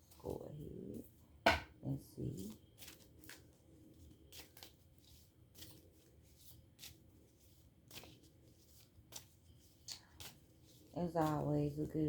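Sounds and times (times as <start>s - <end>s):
cards snapping and rustling: 2.8s - 11.4s.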